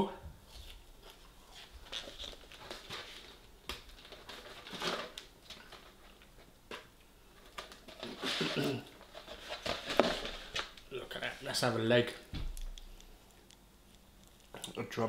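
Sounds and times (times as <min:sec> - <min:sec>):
food packaging rustling: 0:00.5 - 0:10.8.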